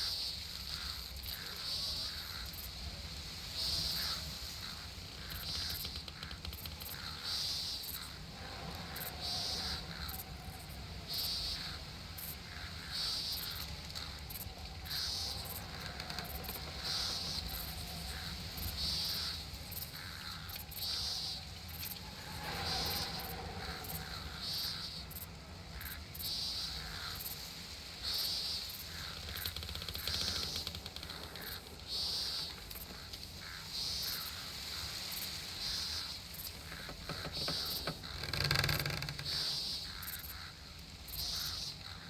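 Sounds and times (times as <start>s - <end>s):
insect buzzing: 0.0s - 42.0s
low outdoor rumble: 2.3s - 38.2s.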